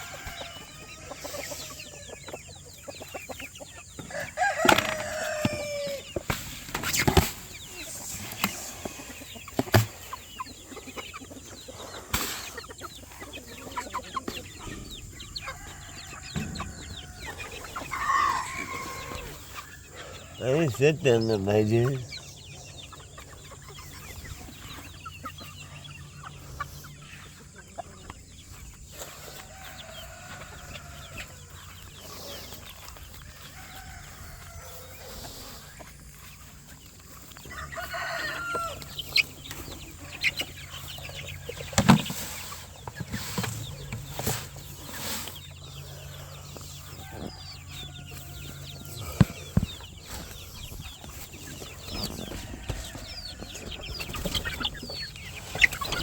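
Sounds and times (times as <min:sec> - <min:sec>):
rooster crowing: 0:00.0 - 0:02.1, 0:04.0 - 0:06.1, 0:15.2 - 0:20.3, 0:37.4 - 0:39.0, 0:46.9 - 0:49.2
chickens clucking: 0:00.0 - 0:56.0.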